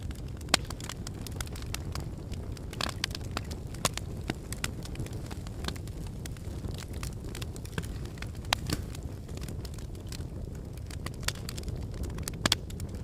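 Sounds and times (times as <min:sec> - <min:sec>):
logs crackling and popping: 0:00.0 - 0:13.0
low rumble of flames: 0:00.0 - 0:13.0.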